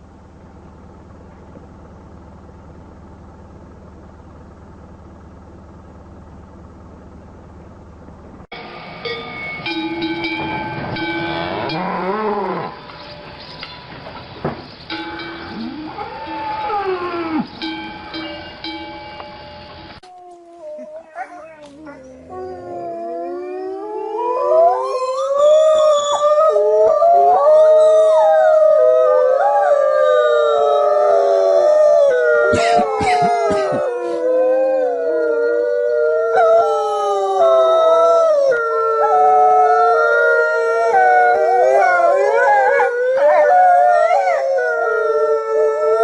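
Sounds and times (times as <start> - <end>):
dogs howling: 11.3 - 13.7, 15.4 - 18.6, 20.0 - 46.0.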